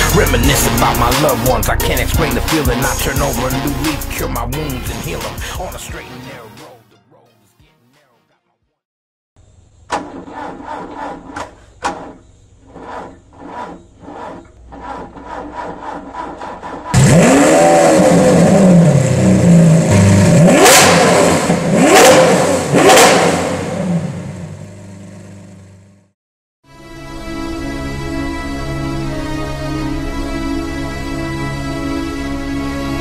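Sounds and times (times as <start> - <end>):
car engine revving loudly: 10.0 - 25.6.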